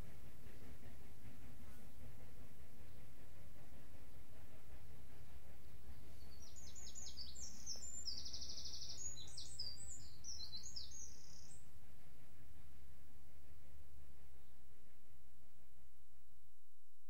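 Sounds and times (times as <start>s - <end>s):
songbird singing with trill: 6.2s - 11.6s.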